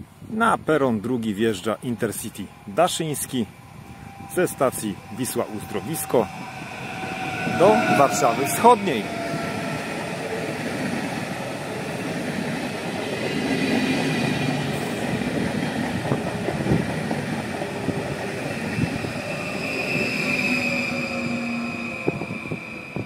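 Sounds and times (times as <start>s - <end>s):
train wheels rumbling and clicking: 3.7s - 23.0s
wheel or brake squeal: 3.9s - 9.9s, 18.8s - 23.0s.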